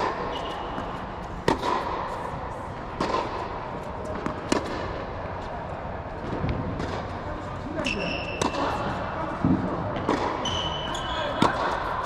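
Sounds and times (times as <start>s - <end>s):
tennis ball sharp pops: 1.4s - 2.0s, 4.2s - 4.9s.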